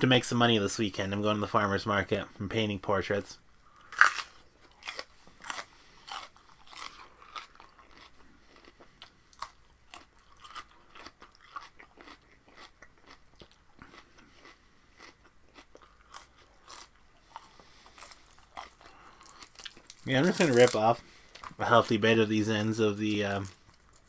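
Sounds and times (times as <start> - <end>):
chewing raw vegetables: 3.8 - 21.9.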